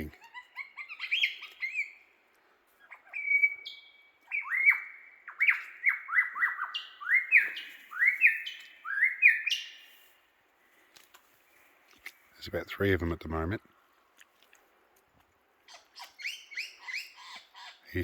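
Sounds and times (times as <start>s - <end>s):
lyrebird whistled song: 0.1s - 2.1s, 2.8s - 10.1s, 15.7s - 18.0s.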